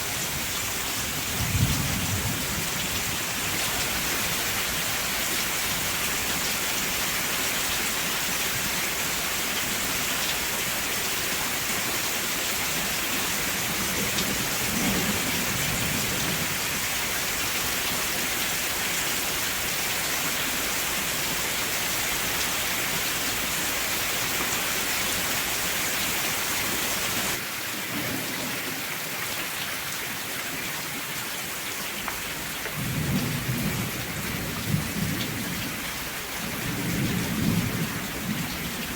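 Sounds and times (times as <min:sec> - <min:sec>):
heavy rain falling: 0:00.0 - 0:38.9
thunder rumbling: 0:00.2 - 0:03.6, 0:13.6 - 0:16.8, 0:32.7 - 0:38.9.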